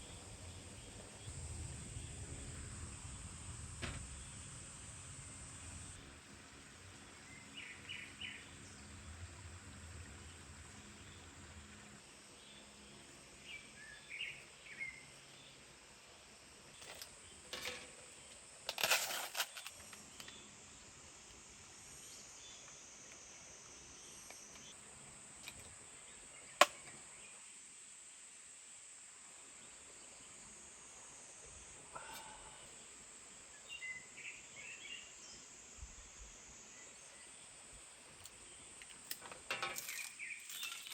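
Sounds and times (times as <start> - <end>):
rustling and handling noises: 16.8 - 20.4.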